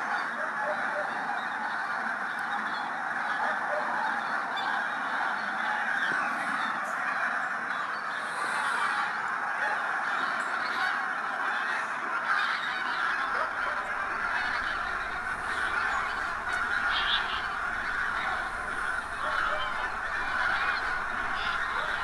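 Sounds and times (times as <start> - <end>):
flock of geese honking: 0.0 - 22.0.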